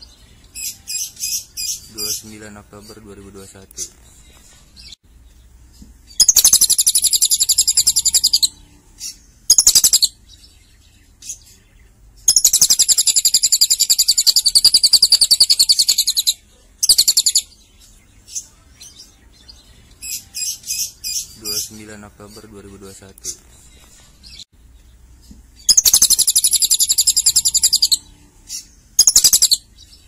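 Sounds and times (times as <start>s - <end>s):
lovebird chattering trills: 6.1s - 10.2s, 12.3s - 17.5s, 25.6s - 29.7s.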